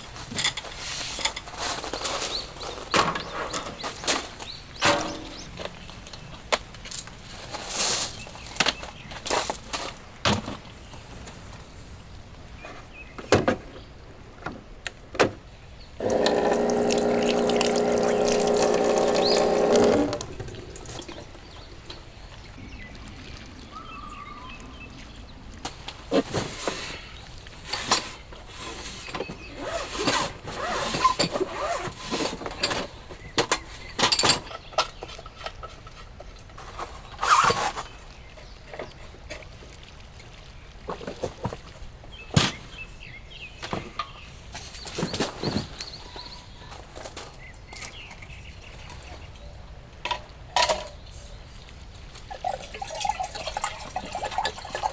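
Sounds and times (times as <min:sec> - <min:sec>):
small electric motor humming: 0:16.0 - 0:21.2.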